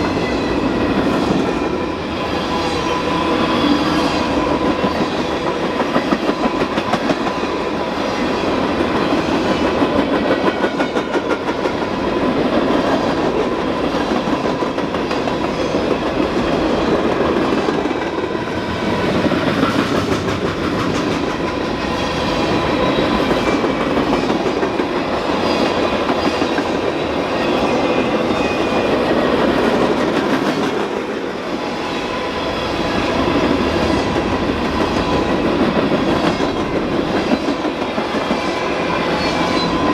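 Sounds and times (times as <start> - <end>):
train wheels clicking over rail joints: 18.8 - 27.0.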